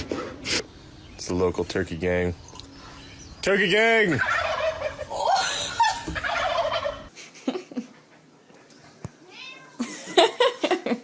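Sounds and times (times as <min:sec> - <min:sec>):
turkeys gobbling: 0:03.9 - 0:07.1.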